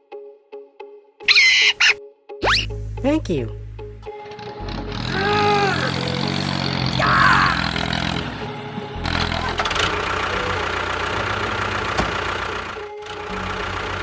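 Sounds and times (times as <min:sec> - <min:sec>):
motor droning: 0:03.6 - 0:14.0.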